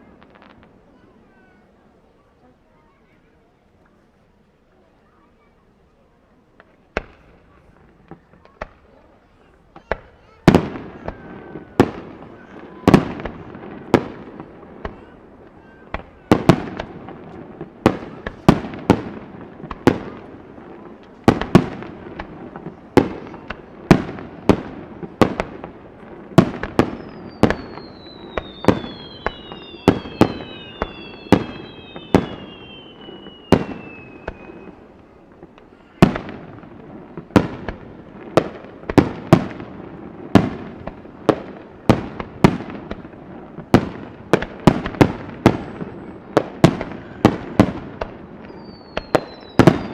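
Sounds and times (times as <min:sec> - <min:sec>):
fireworks whistling: 0:09.7 - 0:49.9
fireworks shells bursting: 0:26.4 - 0:34.8.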